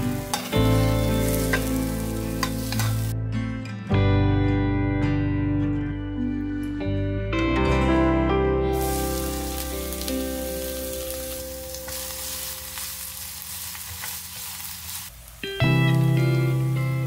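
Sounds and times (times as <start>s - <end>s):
onion sizzling in oil: 0.0s - 3.1s, 8.7s - 17.0s
acoustic guitar music: 0.0s - 12.7s, 15.4s - 17.0s
spatula stirring: 11.9s - 15.1s.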